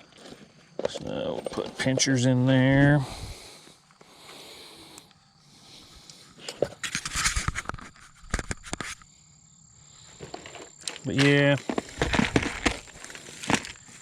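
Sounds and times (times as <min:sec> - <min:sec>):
fishing gear rustling and clattering: 0:00.0 - 0:03.0, 0:10.0 - 0:14.0.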